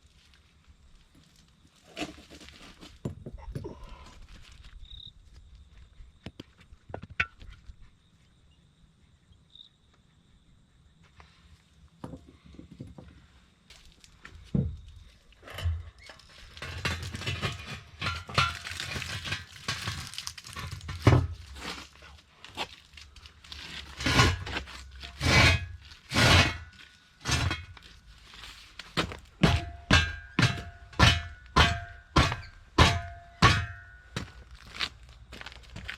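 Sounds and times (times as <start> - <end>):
steel parts clanking and knocking: 15.4 - 21.5, 29.0 - 34.4
metal scraping and rattling: 15.4 - 22.0, 23.6 - 34.7.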